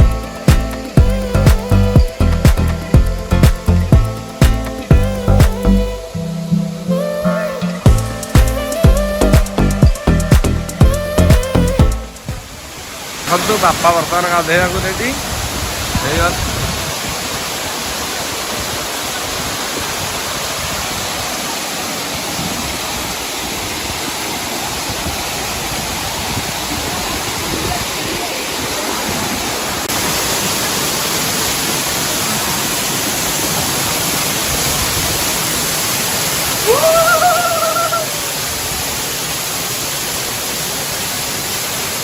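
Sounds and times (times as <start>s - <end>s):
waterfall roar: 0.0s - 42.0s.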